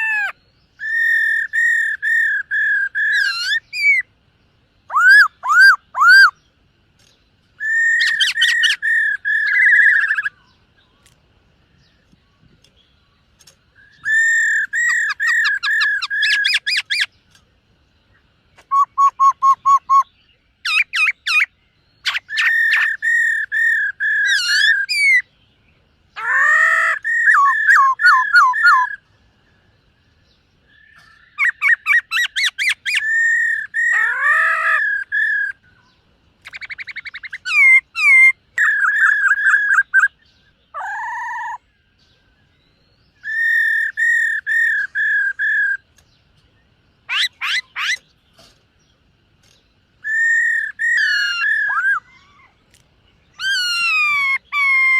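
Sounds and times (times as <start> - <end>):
bird singing whistled notes: 0.0 - 54.9
bird sweeping calls: 13.8 - 17.1, 47.1 - 48.5.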